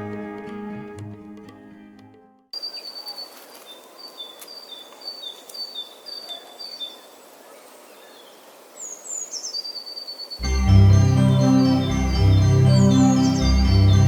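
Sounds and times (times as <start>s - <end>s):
bird chirping: 2.6s - 14.0s
keyboard music: 10.4s - 14.0s.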